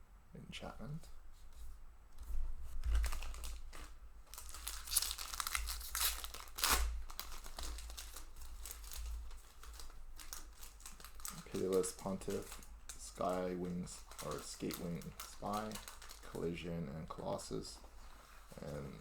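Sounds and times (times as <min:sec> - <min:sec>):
foil wrapper crinkling and tearing: 0:02.7 - 0:19.0.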